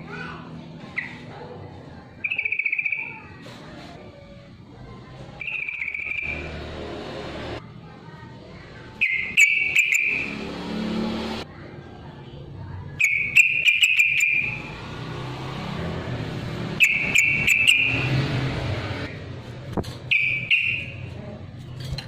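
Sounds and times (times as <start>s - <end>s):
bird singing: 2.2s - 3.3s, 5.4s - 6.4s, 9.0s - 10.4s, 13.0s - 14.7s, 16.8s - 18.1s.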